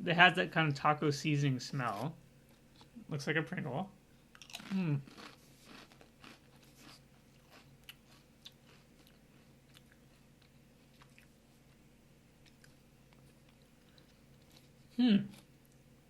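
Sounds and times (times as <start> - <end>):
crunching and chewing crisp: 4.2 - 16.0.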